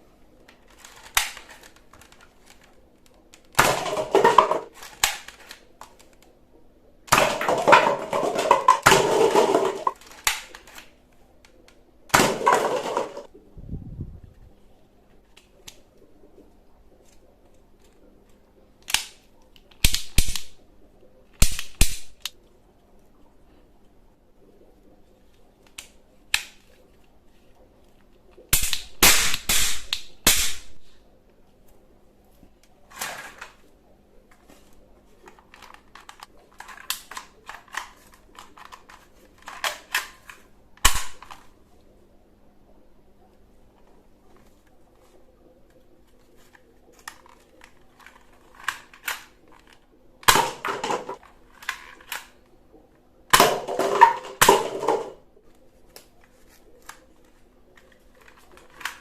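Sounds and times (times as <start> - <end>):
plastic toy guns clicking: 0.5 - 6.3, 7.1 - 13.3, 18.8 - 20.6, 21.3 - 22.4, 25.6 - 26.8, 28.5 - 31.0, 35.3 - 41.5, 47.0 - 52.4, 57.8 - 59.0
toy gun firing sharp cracks: 0.8 - 1.8, 3.5 - 5.7, 7.1 - 10.9, 18.8 - 19.2, 19.8 - 20.6, 21.4 - 22.4, 28.5 - 30.8, 39.4 - 41.4, 50.2 - 51.2.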